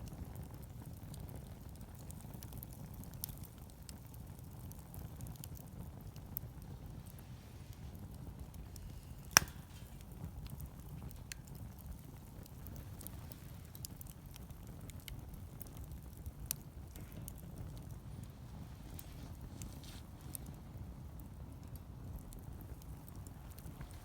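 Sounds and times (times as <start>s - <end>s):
wood fire crackling: 0.0s - 24.0s
loud pop from fire: 7.1s - 15.2s.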